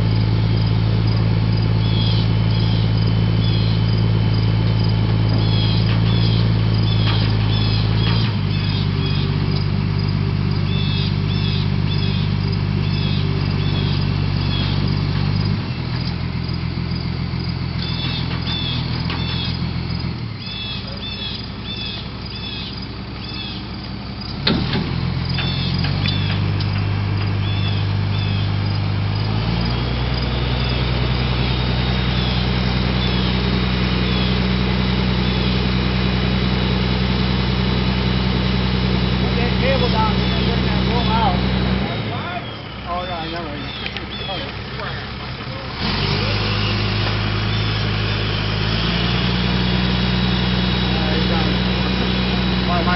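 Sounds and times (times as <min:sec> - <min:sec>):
truck engine running: 0:00.0 - 0:52.9
high chirping calls: 0:01.8 - 0:04.0, 0:05.2 - 0:16.1, 0:16.9 - 0:24.4, 0:25.2 - 0:35.8, 0:39.2 - 0:48.9.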